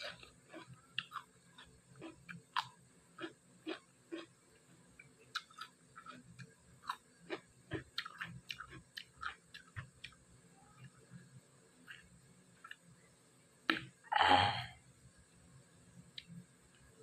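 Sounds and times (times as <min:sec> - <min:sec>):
person chewing crunchy food: 0:00.0 - 0:10.2, 0:11.8 - 0:12.9.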